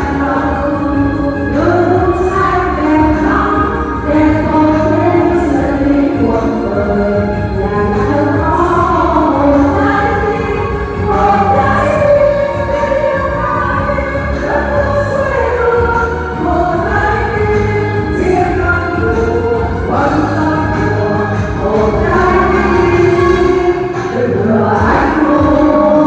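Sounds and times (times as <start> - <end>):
choir singing: 0.0 - 26.0
instrumental accompaniment: 0.0 - 26.0.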